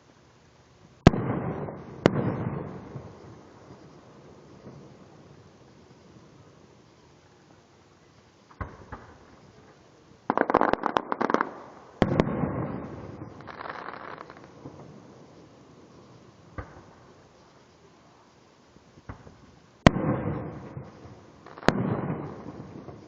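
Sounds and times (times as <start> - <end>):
fireworks crackling pops: 0.9 - 23.0.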